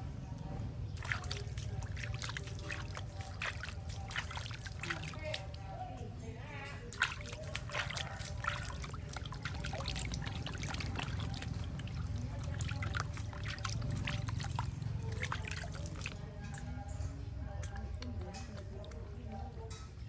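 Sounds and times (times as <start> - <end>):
water trickling and pouring: 1.0 - 5.8, 6.8 - 17.0.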